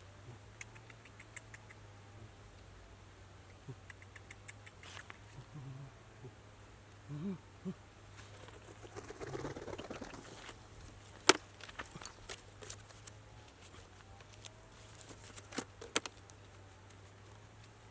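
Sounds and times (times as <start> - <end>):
sharp clicks and taps: 0.6 - 1.8
light rustling: 10.0 - 17.9.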